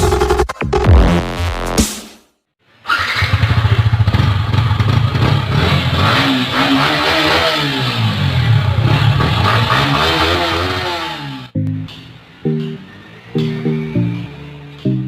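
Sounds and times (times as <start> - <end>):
motorcycle engine revving: 2.9 - 11.6.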